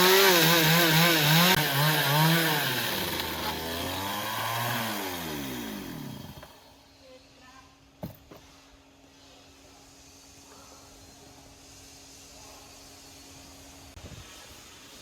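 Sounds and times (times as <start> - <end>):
chainsaw running at high revs: 0.0 - 6.6.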